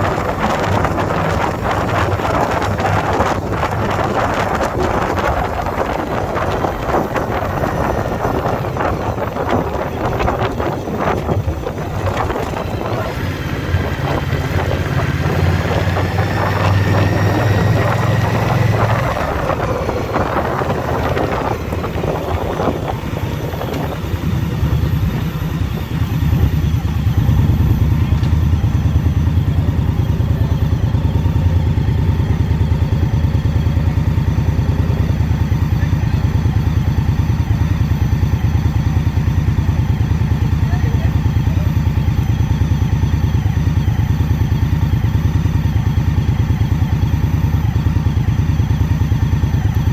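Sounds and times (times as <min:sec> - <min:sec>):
wind rushing over microphone: 0:00.0 - 0:36.2
motorcycle engine running: 0:00.0 - 0:49.9.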